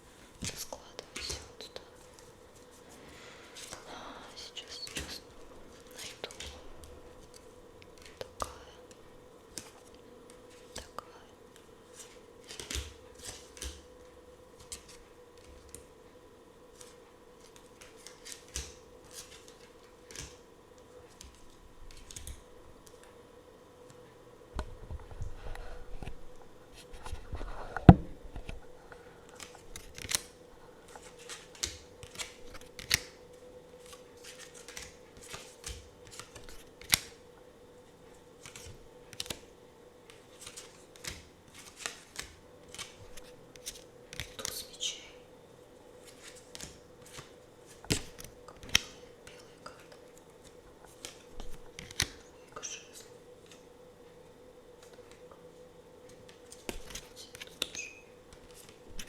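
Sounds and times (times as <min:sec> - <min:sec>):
cards rustling: 0:04.4 - 0:11.0, 0:11.6 - 0:13.9, 0:16.7 - 0:20.4, 0:21.1 - 0:23.0, 0:26.8 - 0:37.2, 0:38.3 - 0:44.7, 0:46.0 - 0:52.2
cards clicking and tapping: 0:11.6 - 0:13.9, 0:16.8 - 0:20.4, 0:27.8 - 0:33.2, 0:33.8 - 0:37.2, 0:38.4 - 0:44.6, 0:46.0 - 0:52.2, 0:56.1 - 0:59.0.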